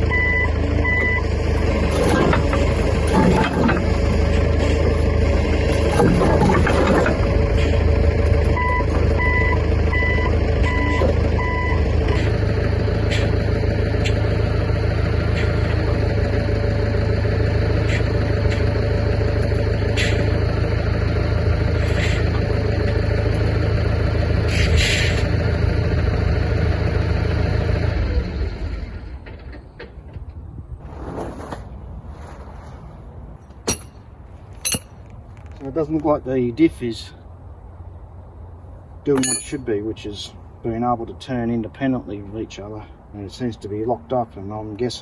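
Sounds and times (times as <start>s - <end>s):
vehicle engine humming: 0.0s - 45.0s
reversing alarm beeping: 0.1s - 1.3s, 8.6s - 12.3s
sharp metallic knocks: 33.5s - 35.1s, 39.1s - 39.7s.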